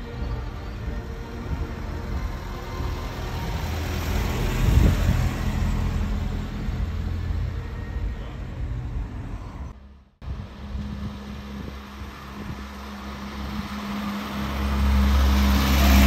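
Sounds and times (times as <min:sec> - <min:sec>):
car driving past: 0:13.2 - 0:16.0.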